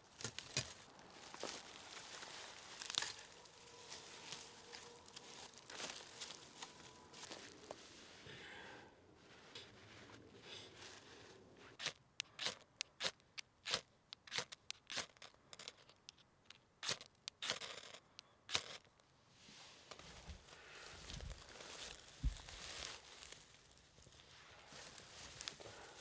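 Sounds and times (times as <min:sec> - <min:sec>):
sharp clicks and snips: 0:11.8 - 0:19.1.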